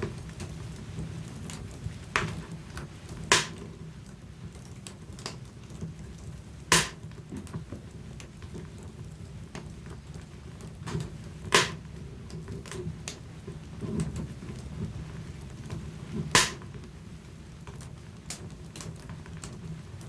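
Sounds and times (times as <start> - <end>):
fire rumbling and crackling: 0.0 - 20.0
fire popping loudly: 3.2 - 3.7, 6.7 - 7.2, 10.8 - 12.4, 13.8 - 16.7.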